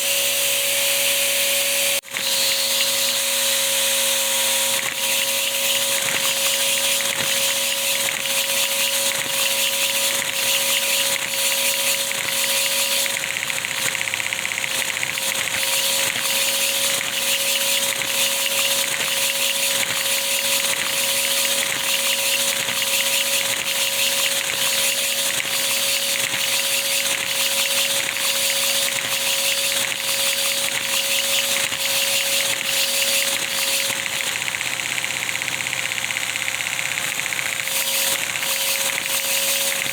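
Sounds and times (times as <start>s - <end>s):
engine mechanical clicks: 33.4s - 39.9s.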